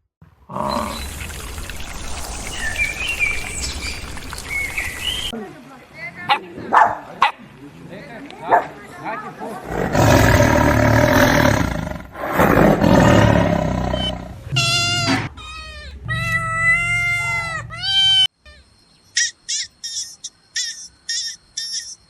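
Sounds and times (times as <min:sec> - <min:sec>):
animal roaring calls: 0:00.5 - 0:03.2, 0:09.6 - 0:18.1
animal pitched calls: 0:12.8 - 0:18.6.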